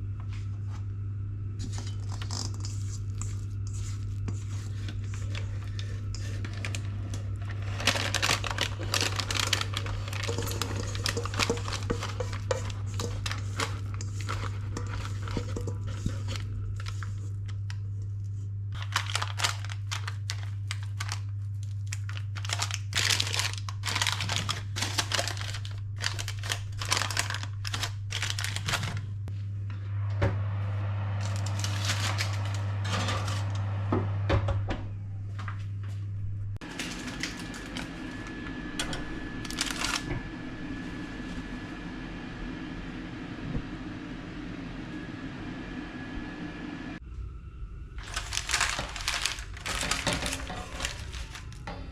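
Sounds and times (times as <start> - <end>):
steady low hum: 0.0 - 51.9
packaging crinkling and rustling: 1.6 - 29.2, 31.2 - 33.5, 36.6 - 40.2, 48.0 - 51.8.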